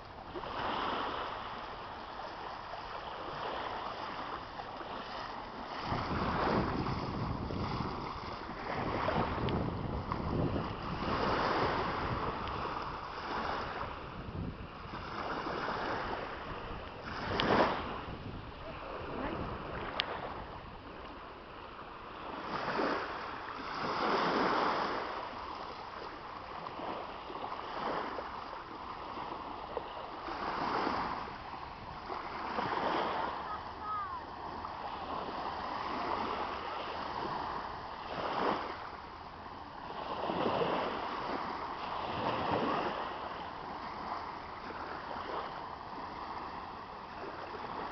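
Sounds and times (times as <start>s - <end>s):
wind buffeting microphone: 5.6s - 21.2s.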